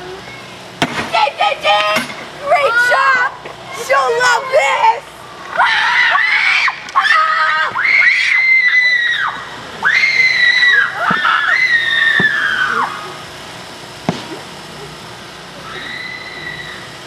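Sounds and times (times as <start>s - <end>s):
girls screaming: 2.4s - 13.2s, 15.6s - 16.9s.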